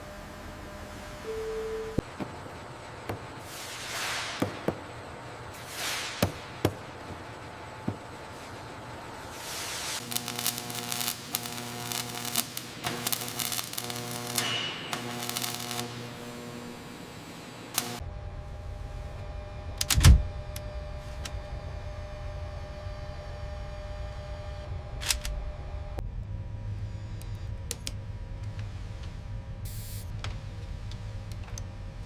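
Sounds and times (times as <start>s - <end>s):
falling hisses: 10.0s - 18.0s
rapid clicking: 10.0s - 18.0s
sharp clicks: 10.0s - 18.0s, 19.8s - 21.4s, 25.0s - 25.3s
pulsing machine hum: 10.0s - 32.0s.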